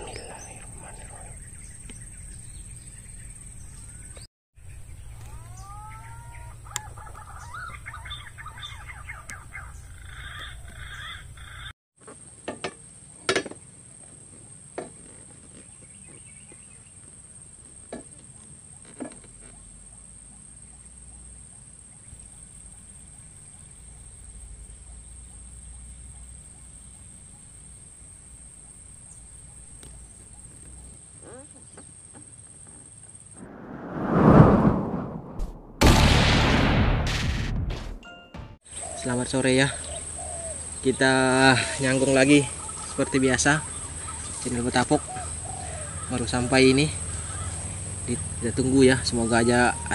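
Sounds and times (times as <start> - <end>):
whistled bird calls: 0.0 - 11.7.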